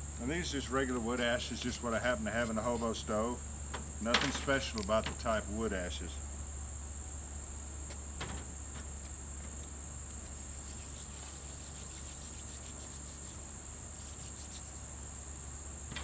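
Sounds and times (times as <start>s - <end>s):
low steady rumble: 0.0s - 7.8s
high-pitched insect chorus: 0.0s - 16.0s.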